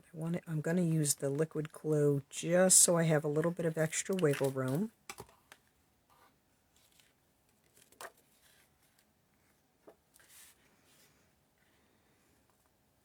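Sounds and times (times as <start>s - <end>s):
paper rustling: 3.4s - 9.1s, 10.1s - 11.0s.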